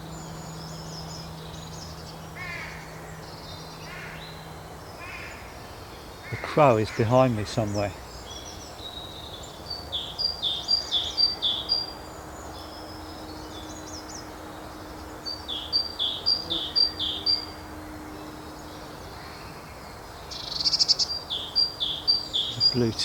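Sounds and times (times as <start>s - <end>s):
faint songbirds calling: 0.0s - 23.0s
busy high bird notes: 6.3s - 8.0s, 22.0s - 23.0s.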